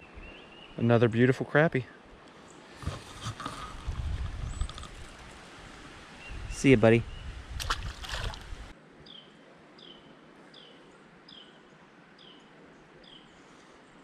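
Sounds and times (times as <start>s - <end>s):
outdoor background noise: 0.0s - 14.0s
brief knocks or splashes: 7.6s - 8.5s.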